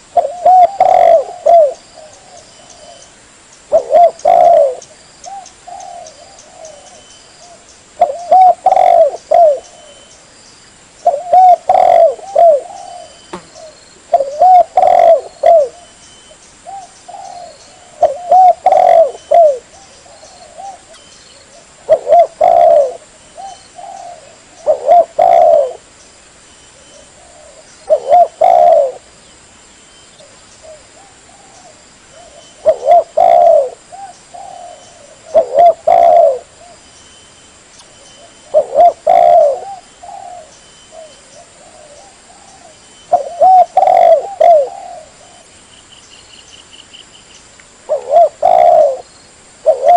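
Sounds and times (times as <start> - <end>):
dove cooing: 0.0 - 10.1, 11.0 - 16.0, 16.6 - 25.9, 26.8 - 29.1, 30.2 - 36.8, 38.2 - 45.5, 47.9 - 49.9.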